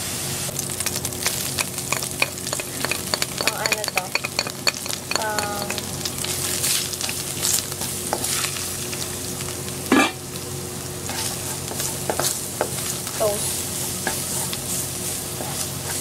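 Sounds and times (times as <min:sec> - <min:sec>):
garlic sizzling in hot oil: 0:00.1 - 0:16.0
spatula scraping wok: 0:01.2 - 0:08.8, 0:09.9 - 0:10.2, 0:11.0 - 0:16.0.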